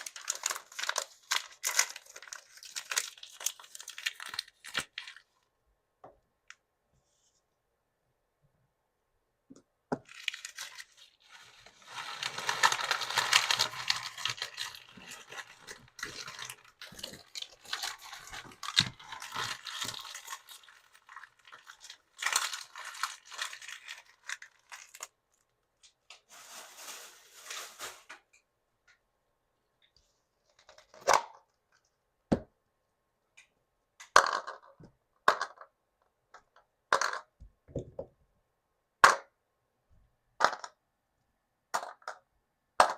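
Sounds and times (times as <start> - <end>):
plastic packaging tearing and crinkling: 0.0 - 5.2, 10.1 - 25.2, 26.3 - 28.1
small plastic pieces clicking: 11.9 - 25.1.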